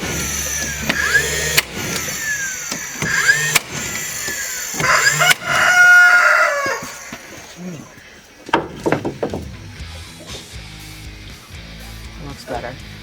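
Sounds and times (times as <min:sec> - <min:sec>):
rooster crowing: 0:04.8 - 0:07.7.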